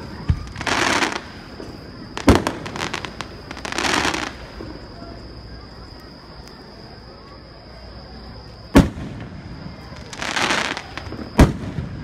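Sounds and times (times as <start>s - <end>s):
firework hissing crackle: 0.0s - 5.4s, 8.7s - 12.0s.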